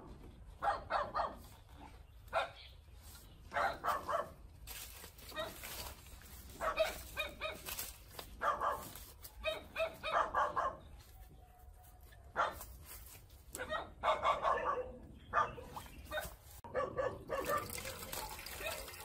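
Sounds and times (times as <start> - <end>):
dog barking: 0.6 - 1.5, 2.3 - 2.6, 3.5 - 4.4, 5.3 - 5.6, 6.6 - 7.7, 8.4 - 12.7, 13.5 - 18.0, 18.6 - 19.0.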